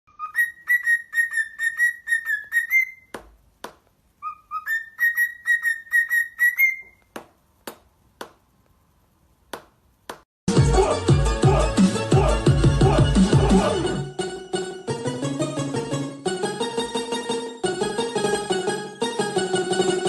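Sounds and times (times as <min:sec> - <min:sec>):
parrot whistling: 0:00.1 - 0:03.1, 0:04.2 - 0:07.1
loud music: 0:10.5 - 0:16.6.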